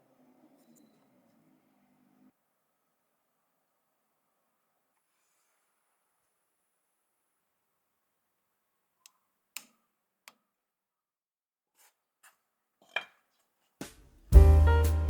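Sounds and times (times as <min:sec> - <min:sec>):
piano music with low beat: 0:14.3 - 0:15.0.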